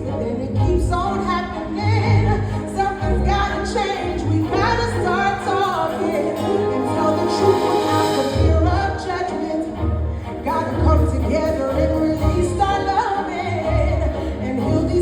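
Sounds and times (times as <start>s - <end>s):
bass and accompaniment: 0.0s - 15.0s.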